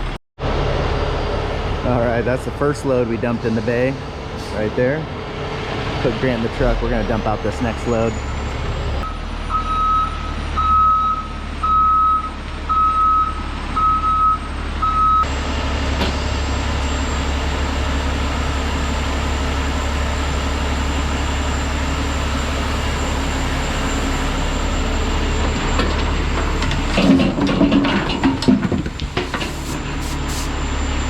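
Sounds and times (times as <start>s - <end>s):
heavy machine engine: 0.0s - 31.0s
reversing alarm beeps: 8.1s - 15.3s.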